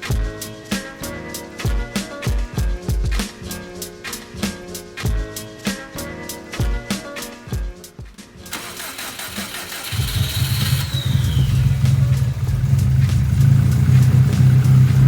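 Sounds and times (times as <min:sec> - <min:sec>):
music with drum hits: 0:00.0 - 0:08.6, 0:11.4 - 0:15.0
car engine idling: 0:08.5 - 0:15.0
starter whine: 0:08.5 - 0:15.0.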